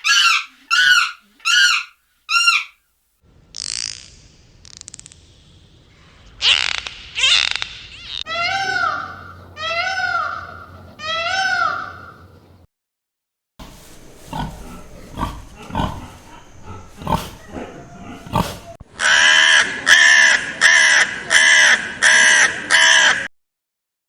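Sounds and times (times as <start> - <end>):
harsh animal calls: 0.0 - 2.8, 13.6 - 23.3
animal grunting: 13.6 - 18.8.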